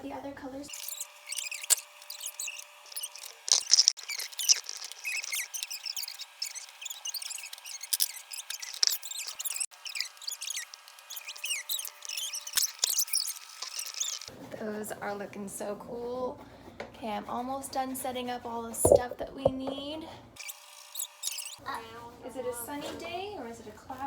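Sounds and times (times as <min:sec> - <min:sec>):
markers squeaking on paper: 0:00.7 - 0:14.3, 0:20.4 - 0:21.6.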